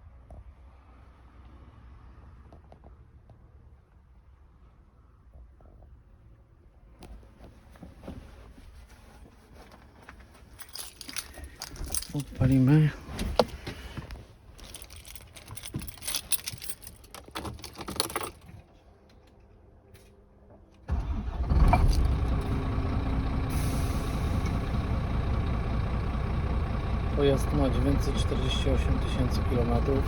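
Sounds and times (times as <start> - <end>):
clicks and rattles: 14.6 - 19.4
diesel truck engine starting and idling: 20.8 - 30.0.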